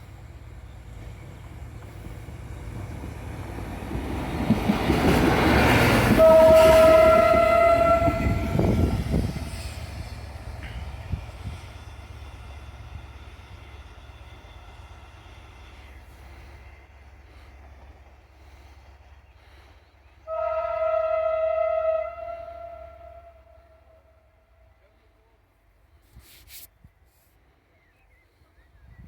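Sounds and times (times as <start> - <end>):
train rail noise: 0.0 - 27.4
train horn blast: 5.6 - 9.6, 20.3 - 24.5.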